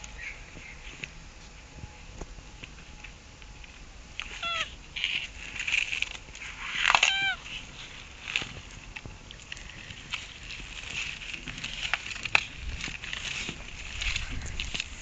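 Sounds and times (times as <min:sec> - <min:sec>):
tortoise calls: 0:04.0 - 0:15.0.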